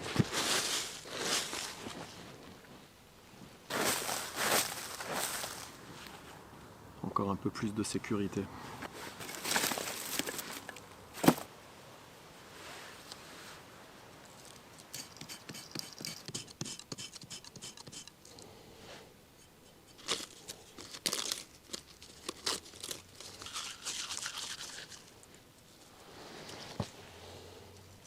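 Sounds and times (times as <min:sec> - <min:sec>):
scraping hiss: 0:14.8 - 0:20.8
dry twigs crackling and snapping: 0:20.0 - 0:24.3.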